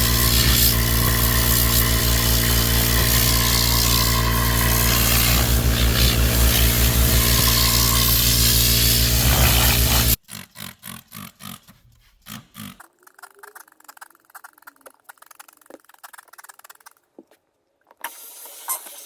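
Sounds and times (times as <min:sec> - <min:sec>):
detailing machine humming: 0:00.0 - 0:10.2.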